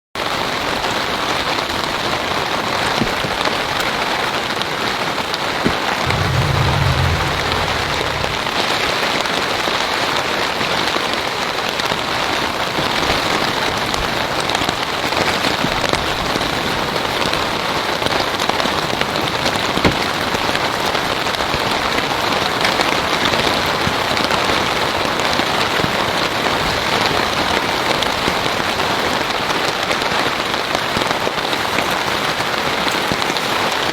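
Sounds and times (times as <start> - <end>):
low rumble: 6.0 - 9.1
heavy rain falling: 6.1 - 8.8
sharp drop impacts: 6.1 - 8.9.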